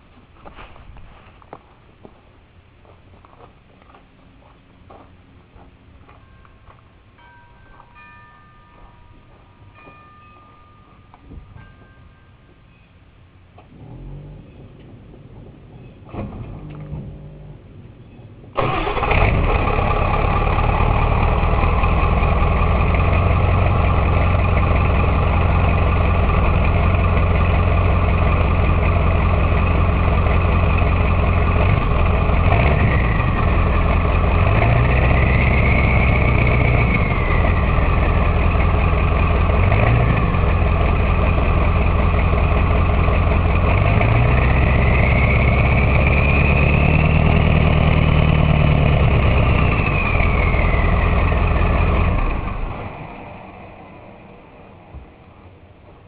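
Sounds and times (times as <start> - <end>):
diesel truck engine starting and idling: 13.6 - 55.3
engine revving: 13.7 - 14.6, 18.6 - 53.8.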